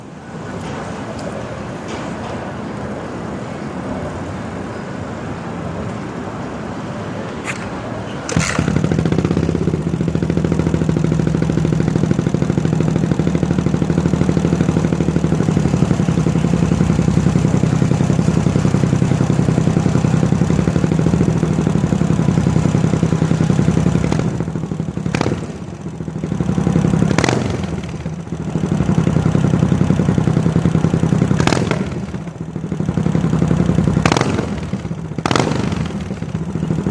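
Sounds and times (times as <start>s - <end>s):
motorcycle engine running: 7.5s - 36.9s.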